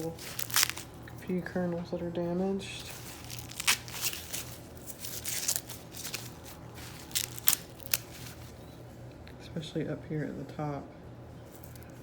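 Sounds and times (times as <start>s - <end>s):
corn snapping: 0.0s - 0.9s, 3.2s - 4.4s, 5.2s - 8.3s
corn husks crackling and rustling: 0.0s - 1.5s, 2.7s - 8.6s.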